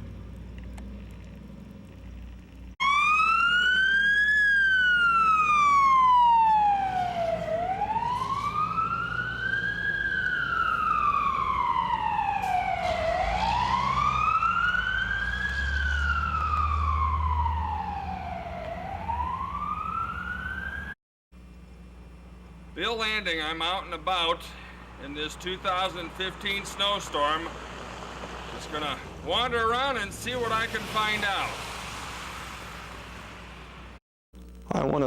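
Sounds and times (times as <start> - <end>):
emergency vehicle siren wailing: 2.8 - 21.0, 24.9 - 33.0.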